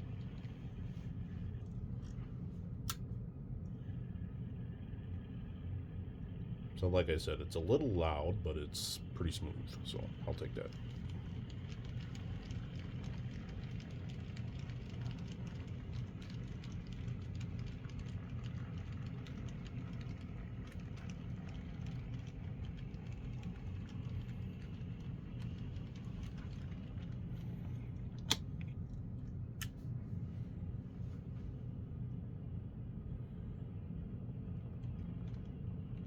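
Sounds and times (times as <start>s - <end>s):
model locomotive motor hum: 6.8s - 28.8s.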